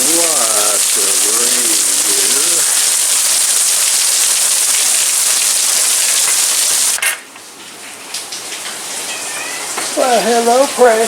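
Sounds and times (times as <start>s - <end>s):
heavy rain: 0.0s - 11.0s.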